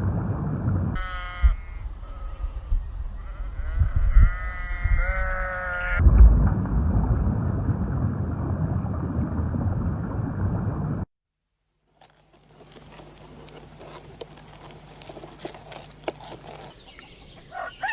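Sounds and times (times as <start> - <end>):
sheep bleating: 1.0 - 6.0
low background rumble: 6.0 - 11.1.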